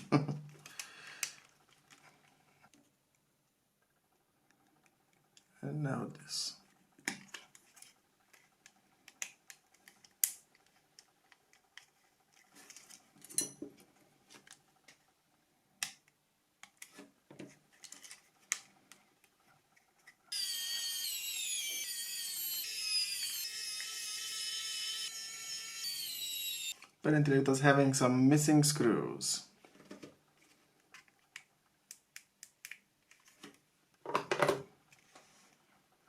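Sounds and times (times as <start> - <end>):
plastic parts clicking: 7.0 - 13.0, 30.8 - 34.6
power tool whining: 20.3 - 26.8.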